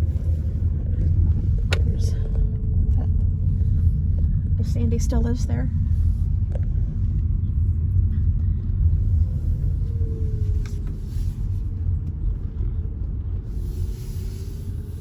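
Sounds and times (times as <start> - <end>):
faint hum: 0.0 - 15.0
tyre and engine rumble: 0.0 - 15.0.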